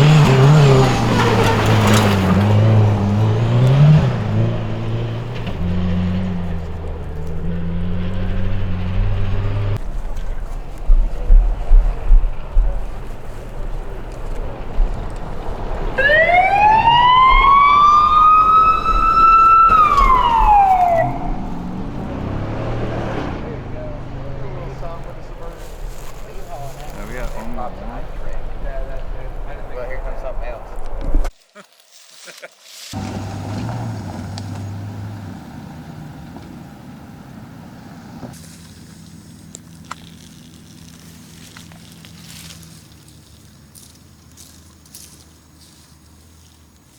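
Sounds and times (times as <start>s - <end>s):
rally car accelerating past: 0.0s - 31.3s, 33.0s - 38.3s.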